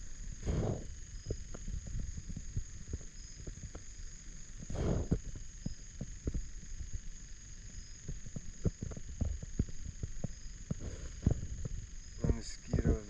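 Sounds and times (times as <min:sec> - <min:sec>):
insect chorus: 0:00.0 - 0:13.0
thumps against microphone: 0:08.1 - 0:13.0.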